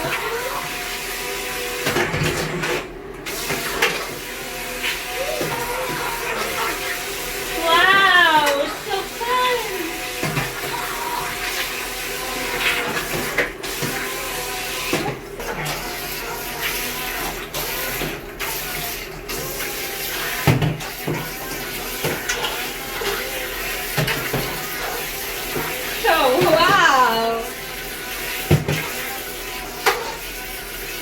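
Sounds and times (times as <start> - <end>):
propellers churning water: 3.3 - 31.0.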